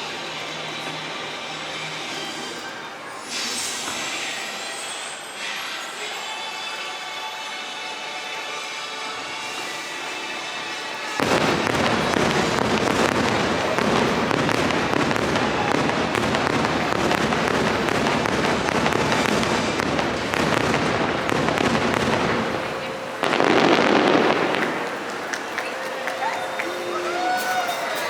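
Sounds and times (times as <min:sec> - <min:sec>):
fireworks crackling and bursting: 0:00.0 - 0:06.6, 0:08.3 - 0:28.0
crowd voices: 0:00.0 - 0:28.0.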